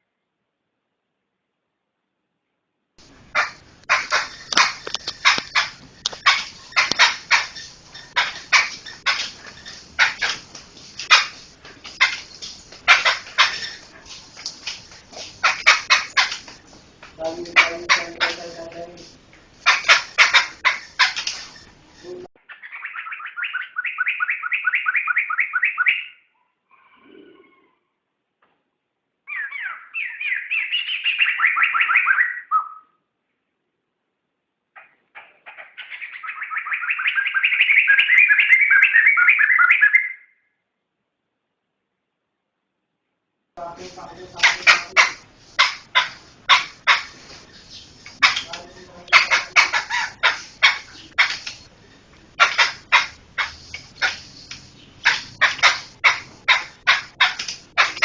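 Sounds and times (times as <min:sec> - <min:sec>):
laughingthrush singing: 0:03.0 - 0:24.4, 0:43.6 - 0:58.0
bird harsh rasping calls: 0:03.2 - 0:21.7, 0:22.4 - 0:27.8, 0:29.3 - 0:32.9, 0:34.8 - 0:40.3, 0:43.7 - 0:58.0
lower steady bird call: 0:19.6 - 0:28.0, 0:29.2 - 0:33.7, 0:34.7 - 0:40.6.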